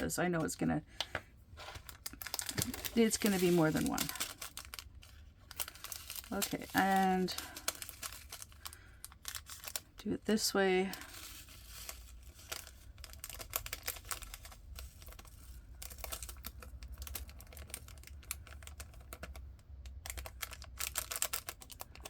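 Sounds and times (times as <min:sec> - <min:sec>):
plastic rhinestones pouring through funnel: 0:02.0 - 0:09.9, 0:10.9 - 0:19.4.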